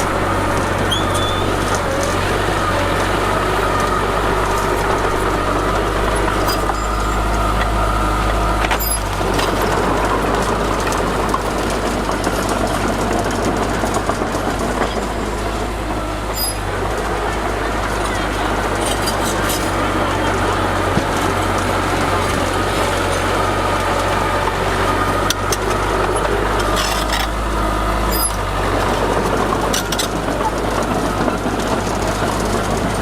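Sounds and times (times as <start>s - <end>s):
faint whining tone: 0.0s - 10.2s
heavy diesel machinery running: 0.0s - 33.0s.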